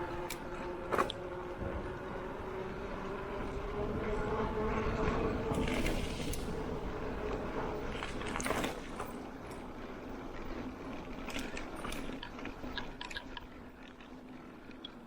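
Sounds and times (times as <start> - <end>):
stones clicking under wheels: 7.8 - 15.0.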